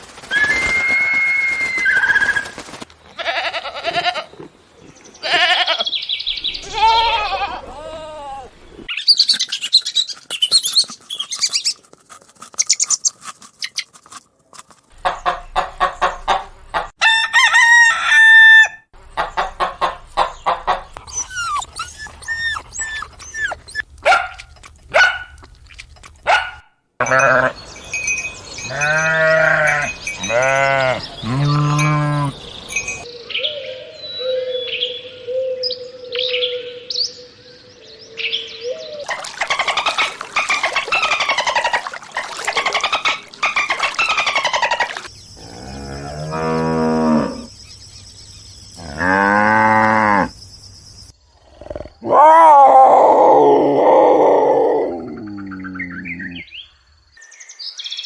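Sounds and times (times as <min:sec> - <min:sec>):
chickens clucking: 0:15.0 - 0:17.0, 0:19.0 - 0:26.4, 0:39.1 - 0:45.1
rooster crowing: 0:17.0 - 0:18.8
chorus of high chirps: 0:21.0 - 0:24.3.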